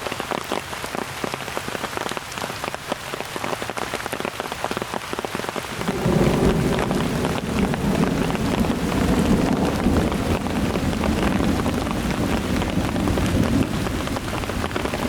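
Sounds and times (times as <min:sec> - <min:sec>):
steady rain falling: 0:00.0 - 0:15.0
low rumble: 0:05.8 - 0:14.4.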